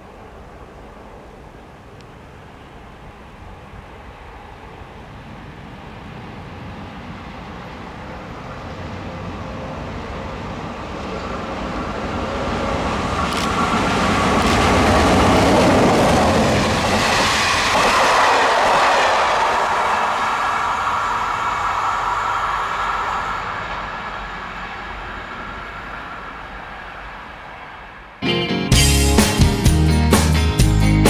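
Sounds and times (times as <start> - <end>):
train passing: 0.0 - 31.0
wheel clatter on rails: 12.5 - 21.1.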